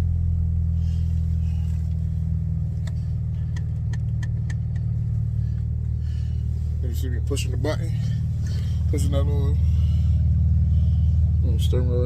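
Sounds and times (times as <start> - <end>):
car engine idling: 0.0 - 12.0
gear shifter clicks: 2.8 - 5.0.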